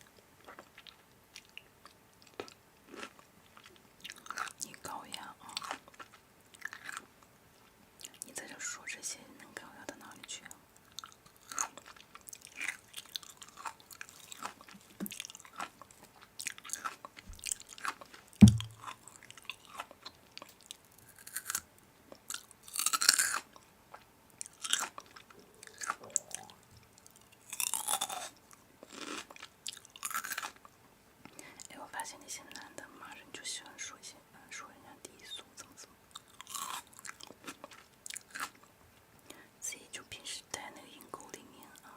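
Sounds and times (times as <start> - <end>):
chewing crisp food: 0.0 - 8.3, 10.8 - 31.7, 35.6 - 39.4
loud low thump: 18.4 - 18.8.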